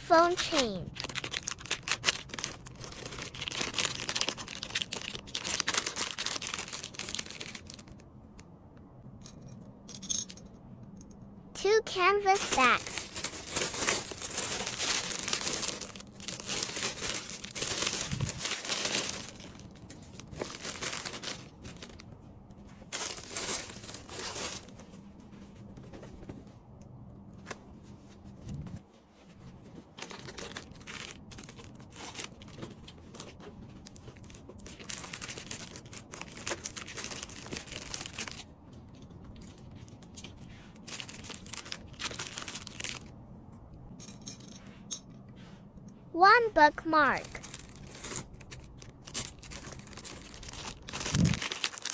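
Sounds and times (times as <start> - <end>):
plastic wrapping crinkling: 0.1 - 8.0, 12.4 - 22.1, 29.9 - 43.1, 47.2 - 51.9.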